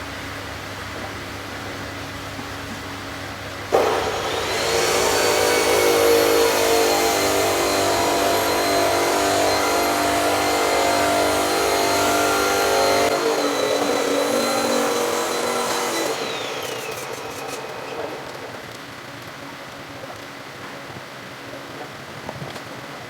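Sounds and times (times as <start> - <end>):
power tool whining: 3.7 - 19.0.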